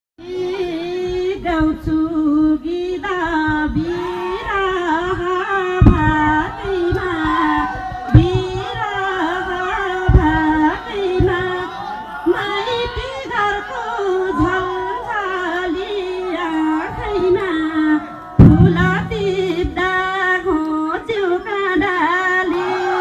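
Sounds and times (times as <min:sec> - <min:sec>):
woman singing: 0:00.2 - 0:22.8
low thumps: 0:05.0 - 0:08.9, 0:18.4 - 0:20.6.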